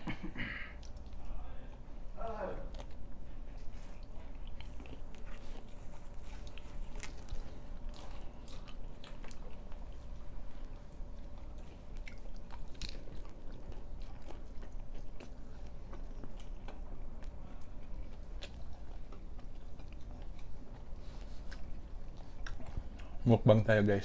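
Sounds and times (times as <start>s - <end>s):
chewing and biting flatbread: 0.0s - 24.0s
steady low hum: 0.0s - 24.0s.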